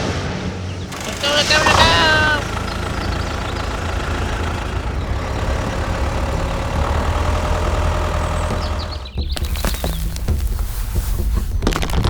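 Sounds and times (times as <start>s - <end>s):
engine idling: 0.8s - 11.8s.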